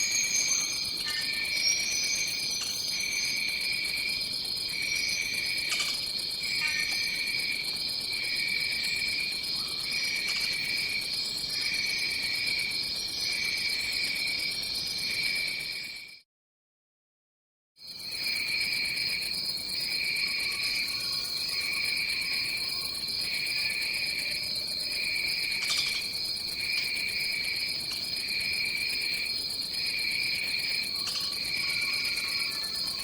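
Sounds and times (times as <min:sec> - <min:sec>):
short high insect calls: 0:00.0 - 0:03.6, 0:23.6 - 0:33.0
pulsing insect chirping: 0:19.7 - 0:33.0.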